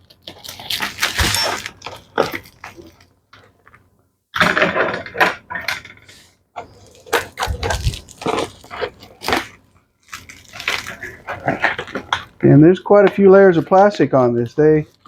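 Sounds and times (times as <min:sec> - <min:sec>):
plastic wrap crinkling and tearing: 0:00.0 - 0:03.1, 0:06.6 - 0:12.4.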